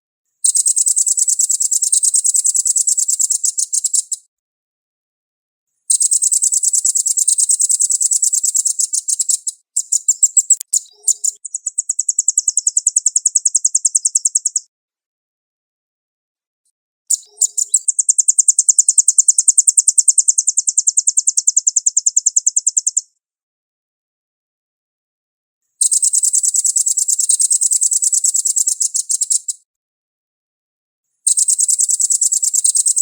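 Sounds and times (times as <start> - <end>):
bird singing fast trills: 0.4 - 4.2, 5.9 - 14.7, 17.1 - 23.1, 25.8 - 29.6, 31.3 - 33.0.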